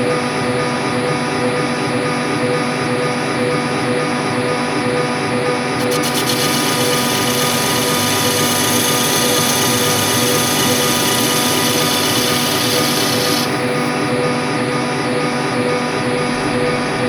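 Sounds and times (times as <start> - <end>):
hiss of cutting steel: 5.8 - 13.9
machine tool motor hum: 5.8 - 14.4.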